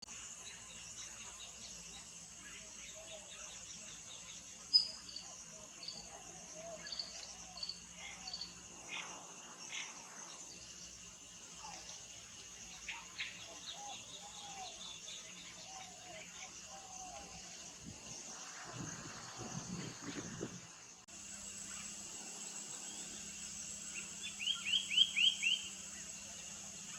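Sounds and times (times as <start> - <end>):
high insect drone: 0.1 - 26.9
birds chirping: 0.2 - 26.9
low whistled bird notes: 22.8 - 26.0.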